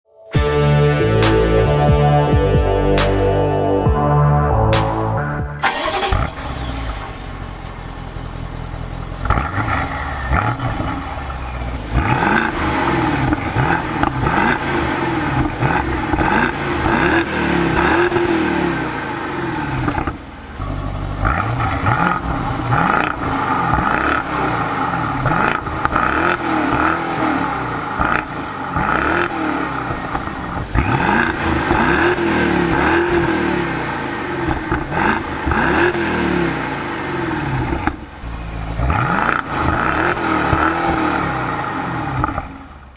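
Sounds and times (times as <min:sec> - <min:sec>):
car engine revving: 0:04.5 - 0:42.9.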